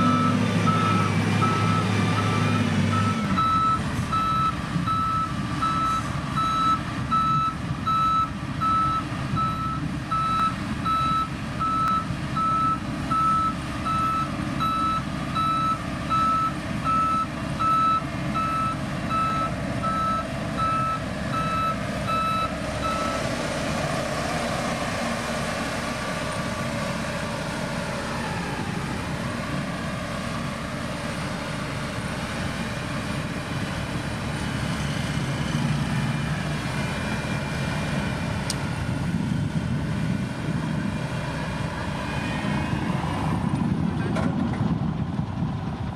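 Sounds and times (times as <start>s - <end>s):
reversing alarm beeping: 0.0s - 23.2s
diesel engine running: 0.0s - 45.9s.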